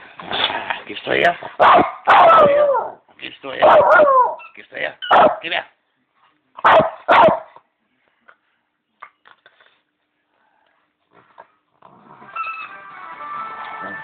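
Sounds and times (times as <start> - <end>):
small dog play barks: 3.6 - 5.5, 6.6 - 7.6.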